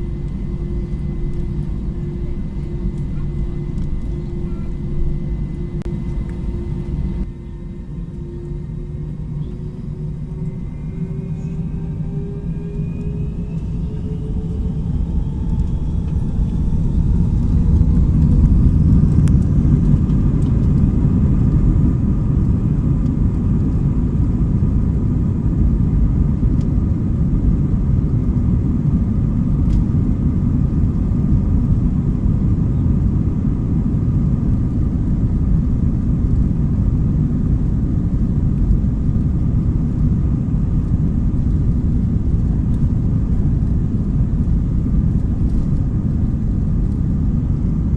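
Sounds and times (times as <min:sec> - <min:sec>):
jet engines spooling up: 0:00.0 - 0:21.5.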